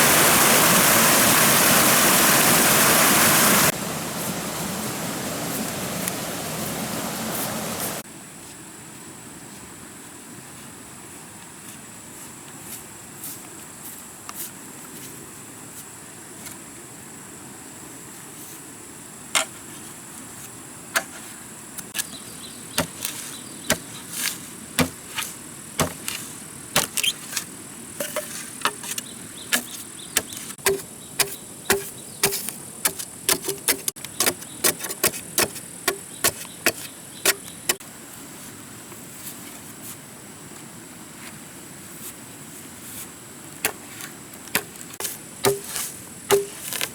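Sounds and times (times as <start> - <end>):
sharp knocks: 24.8 - 25.0, 25.8 - 26.0, 29.6 - 37.8, 44.6 - 46.9.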